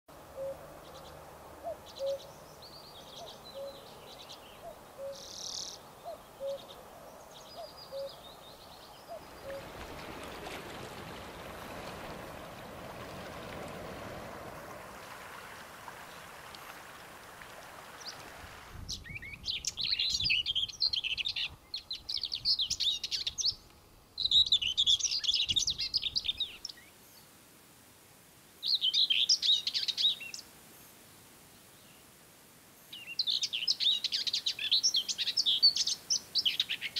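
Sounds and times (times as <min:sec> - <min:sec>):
distant bird calls: 0:00.2 - 0:27.3
bird warbling song: 0:00.3 - 0:09.8, 0:18.8 - 0:27.3, 0:28.6 - 0:30.4, 0:32.9 - 0:36.9.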